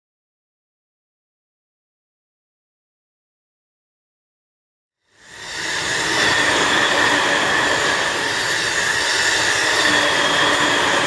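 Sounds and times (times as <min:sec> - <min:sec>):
high-pitched ring: 0:05.1 - 0:11.0
train wheels rushing on rails: 0:05.1 - 0:11.0.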